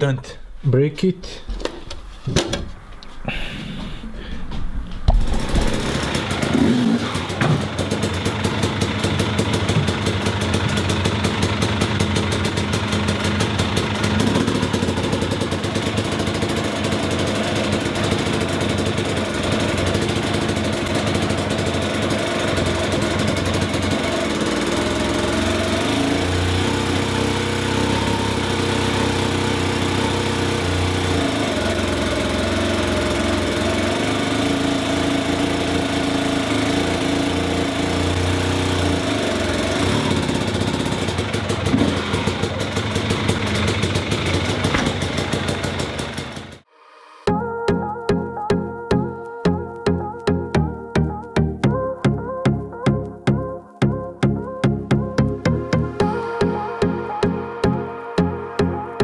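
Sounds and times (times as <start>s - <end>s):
dirt bike engine idling: 5.2s - 46.7s.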